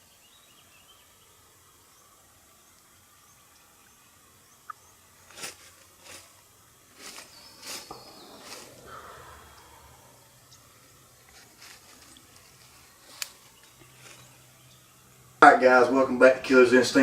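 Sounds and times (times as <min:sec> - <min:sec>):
faint bird chirps: 0:00.0 - 0:05.1, 0:07.0 - 0:11.0
footsteps crunching dry leaves: 0:05.2 - 0:10.2, 0:11.1 - 0:14.6.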